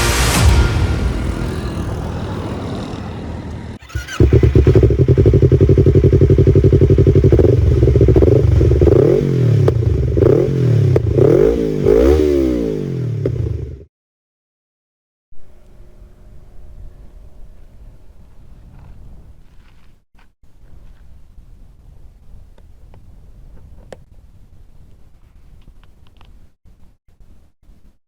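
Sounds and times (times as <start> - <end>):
motorcycle engine revving: 0.0 - 13.9.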